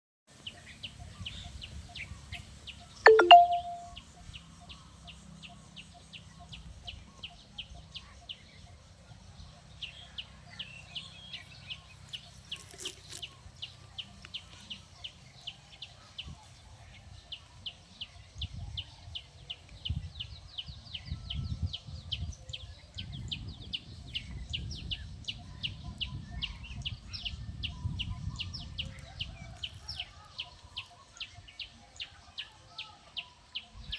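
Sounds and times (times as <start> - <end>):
bird chirping: 1.9 - 4.0.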